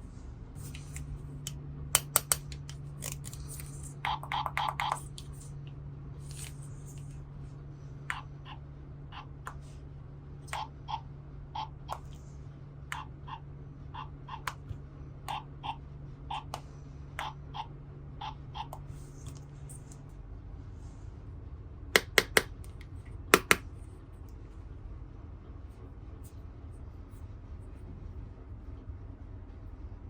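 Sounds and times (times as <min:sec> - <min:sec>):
steady low hum: 0:00.0 - 0:30.0
plastic toy pieces clicking: 0:02.0 - 0:05.4.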